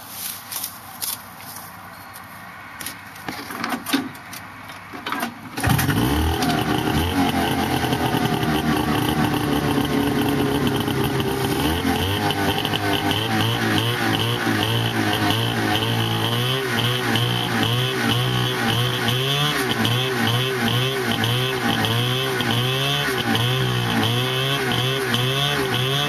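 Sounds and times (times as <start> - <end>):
two-stroke engine running: 5.6 - 26.0.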